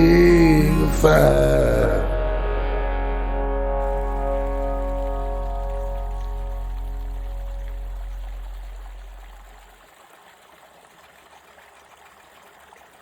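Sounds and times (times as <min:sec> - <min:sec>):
low music note: 0:00.0 - 0:09.6
stream trickling: 0:03.8 - 0:13.0.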